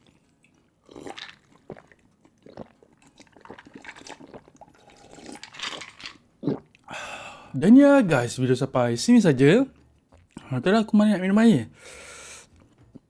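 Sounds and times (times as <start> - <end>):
sipping and swallowing fizzy drink: 0.0 - 6.9.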